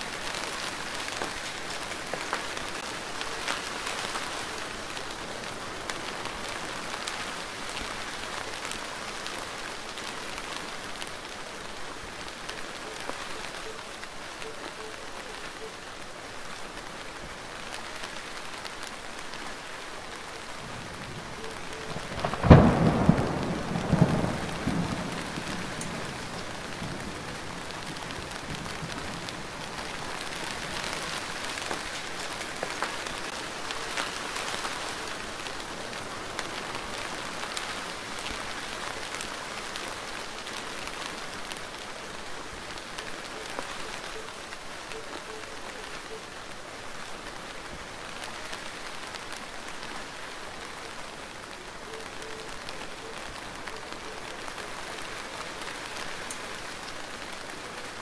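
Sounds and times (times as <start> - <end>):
steady rain falling: 0.0 - 58.0
deep thunder rumble: 22.0 - 27.2.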